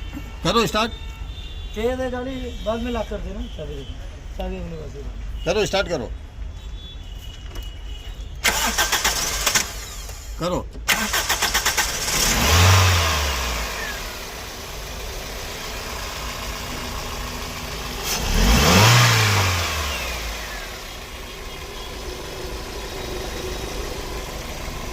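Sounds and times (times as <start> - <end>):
car engine starting and idling: 8.4 - 24.9.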